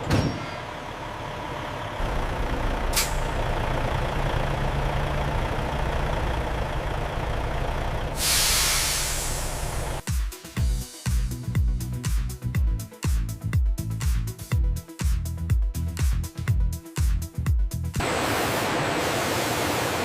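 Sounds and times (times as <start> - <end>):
truck engine rumbling: 0.0 - 10.0
air brake hiss: 2.9 - 3.4, 8.2 - 10.0.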